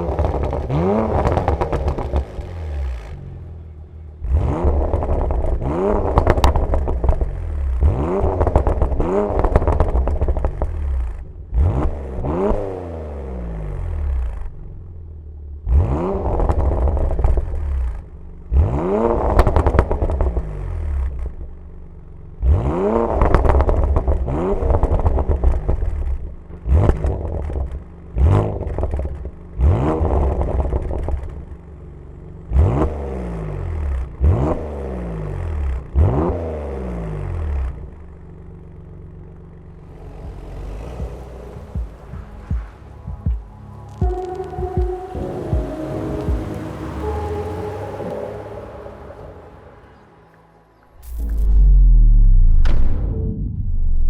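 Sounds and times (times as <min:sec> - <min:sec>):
exhaust crackles and pops: 0:00.0 - 0:03.2, 0:04.5 - 0:12.7, 0:15.8 - 0:18.1, 0:18.8 - 0:21.8, 0:23.0 - 0:32.3, 0:49.1 - 0:54.0
car engine revving: 0:00.0 - 0:54.0.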